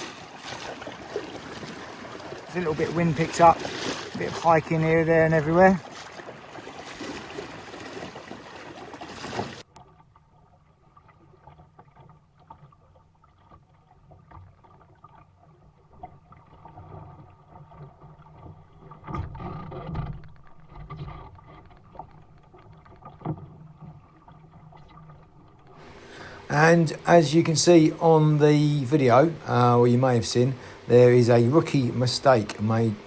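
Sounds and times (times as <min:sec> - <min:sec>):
wind and water rushing: 0:00.0 - 0:09.8, 0:25.8 - 0:33.0
water rumbling along hull: 0:00.0 - 0:33.0.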